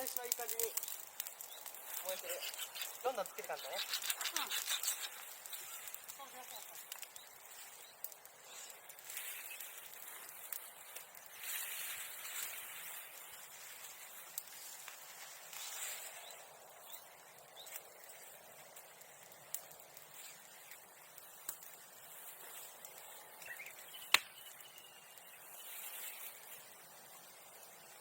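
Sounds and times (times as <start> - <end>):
fire crackling: 0.0 - 28.0
sharp snaps of burning fire: 0.0 - 28.0.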